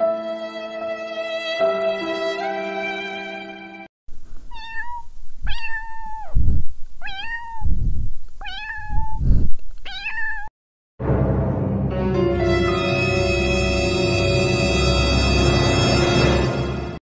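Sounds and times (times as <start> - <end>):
kitten meowing: 4.4 - 7.8, 8.4 - 10.5.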